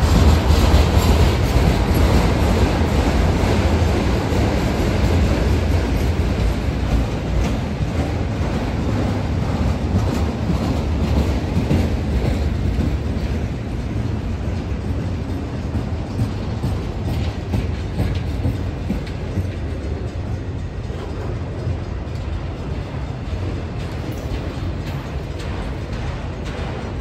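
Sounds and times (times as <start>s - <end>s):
freight car wheels rumbling on rails: 0.0s - 27.0s.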